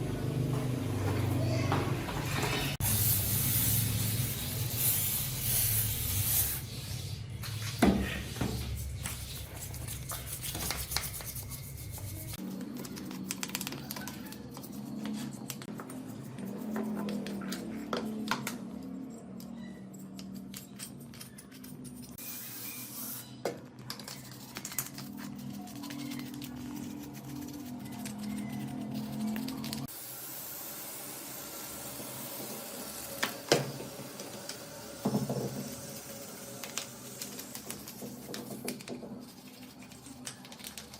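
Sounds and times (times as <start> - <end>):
rubbing and scraping: 6.6 - 18.2.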